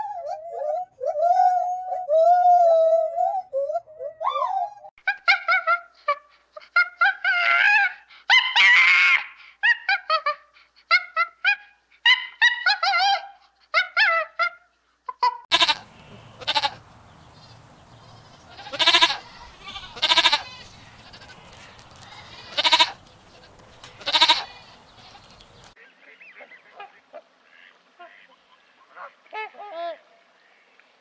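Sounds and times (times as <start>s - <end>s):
short chattering animal calls: 15.5s - 25.8s
loud farm animal calls: 15.5s - 29.2s.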